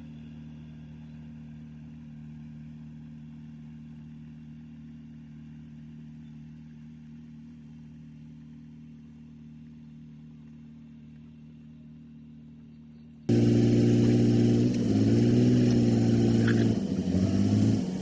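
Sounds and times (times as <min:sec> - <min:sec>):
heavy machinery diesel engine running: 0:13.3 - 0:18.0.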